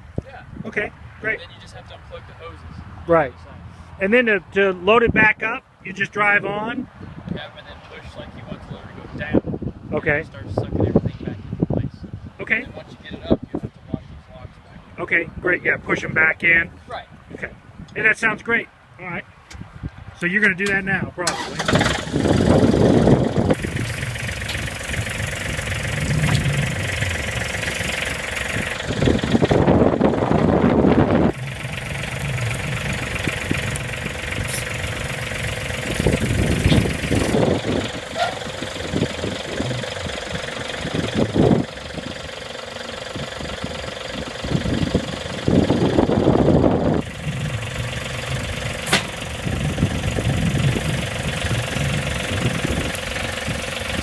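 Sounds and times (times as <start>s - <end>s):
tractor diesel engine running: 20.6s - 54.0s.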